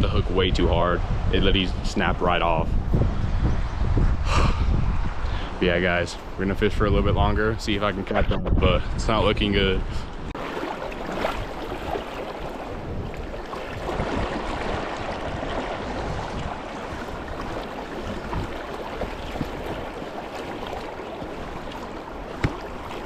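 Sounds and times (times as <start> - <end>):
creek water flowing: 9.8 - 23.0.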